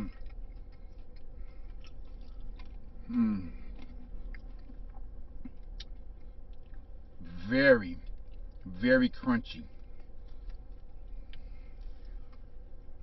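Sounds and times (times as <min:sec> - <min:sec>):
chewing crunchy fried chicken: 0:00.0 - 0:13.0
person humming: 0:03.1 - 0:03.6.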